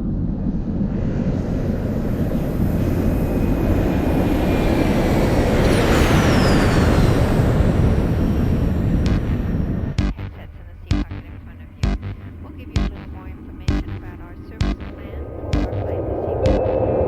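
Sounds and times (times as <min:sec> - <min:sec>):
low engine-like rumble: 0:00.0 - 0:17.0
high whistle gliding downward: 0:02.3 - 0:09.0.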